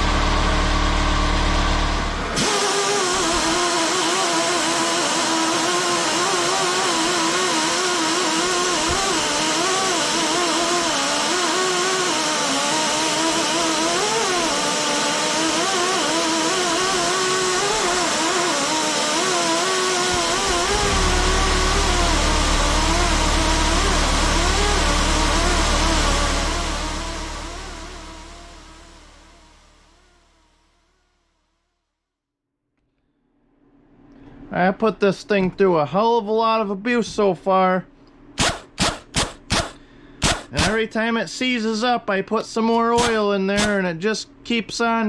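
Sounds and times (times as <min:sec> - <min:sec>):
pneumatic angle grinder whining: 0:00.0 - 0:30.6, 0:38.4 - 0:40.8, 0:43.0 - 0:43.8
low rumble: 0:20.2 - 0:31.0.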